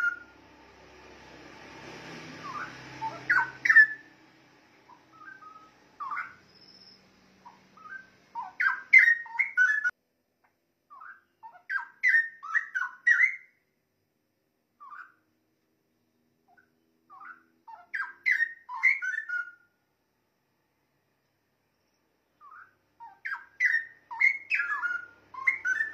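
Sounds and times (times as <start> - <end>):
bird singing whistled phrases: 0.0 - 0.3, 2.4 - 4.1, 4.9 - 9.9, 10.9 - 13.6, 16.6 - 19.6, 22.4 - 25.9.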